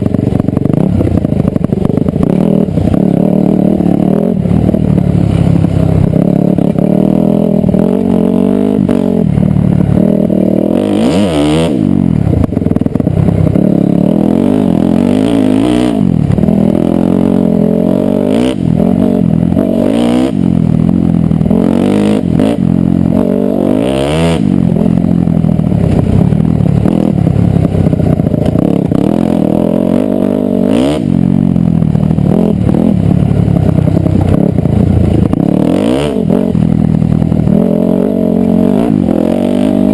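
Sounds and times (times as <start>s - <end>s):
dirt bike engine revving: 0.0s - 39.9s
knocks and clatter from bike: 32.4s - 35.5s.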